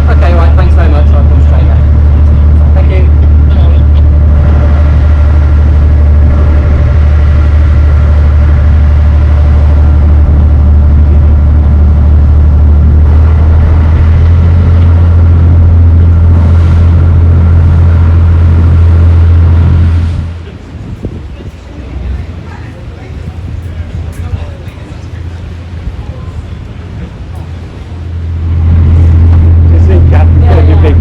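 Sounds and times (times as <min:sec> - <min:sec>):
boat engine running: 0:00.0 - 0:31.0.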